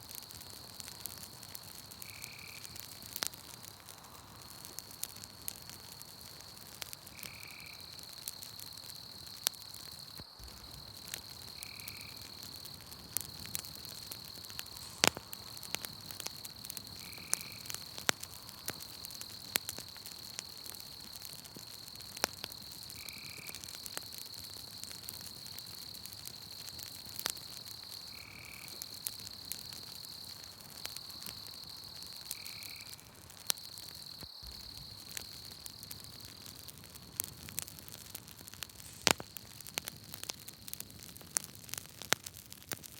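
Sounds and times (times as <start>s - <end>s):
campfire crackling and popping: 0.0s - 42.9s
high insect trill: 0.4s - 37.7s, 38.6s - 39.6s.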